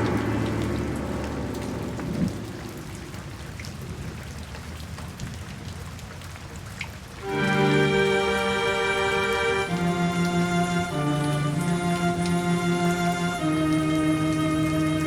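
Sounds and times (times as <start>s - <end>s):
steady rain falling: 0.0s - 15.0s
music: 7.2s - 15.0s.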